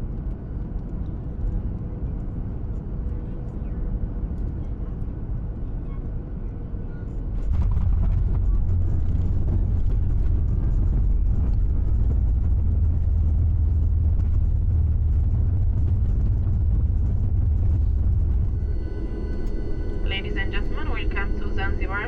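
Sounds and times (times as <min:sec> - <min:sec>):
airplane landing roar: 0:07.2 - 0:22.0.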